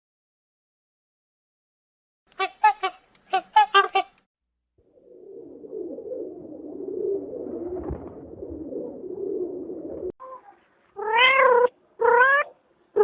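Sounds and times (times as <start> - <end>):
cat meowing: 11.0 - 13.0.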